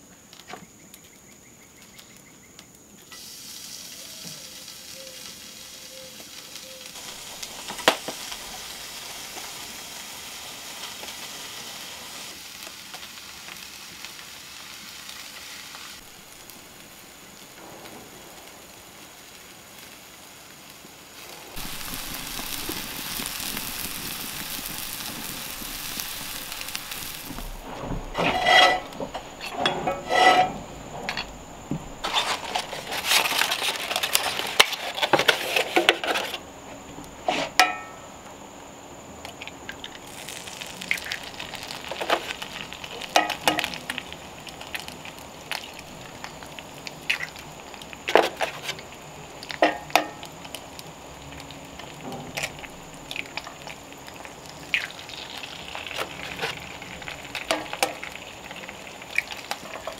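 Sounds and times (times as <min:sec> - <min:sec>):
sausages sizzling in a skillet: 0:03.0 - 0:30.5, 0:31.5 - 0:38.2, 0:39.2 - 0:59.9
cast-iron pans clanking: 0:26.3 - 0:36.4, 0:37.2 - 0:38.0, 0:43.0 - 0:43.8, 0:49.5 - 0:50.3, 0:55.9 - 0:58.1.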